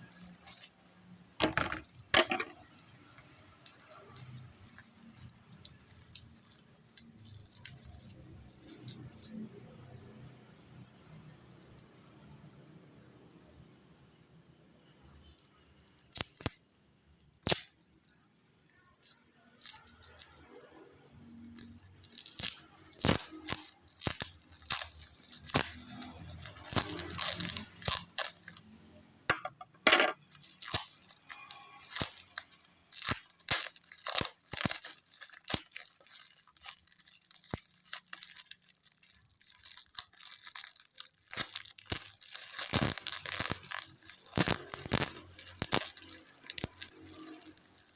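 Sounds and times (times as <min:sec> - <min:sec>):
plastic packaging crinkling: 0:00.0 - 0:00.8, 0:01.4 - 0:10.8, 0:15.2 - 0:16.7, 0:17.4 - 0:29.4, 0:30.1 - 0:47.9
sharp clicks and knocks: 0:29.3 - 0:30.2.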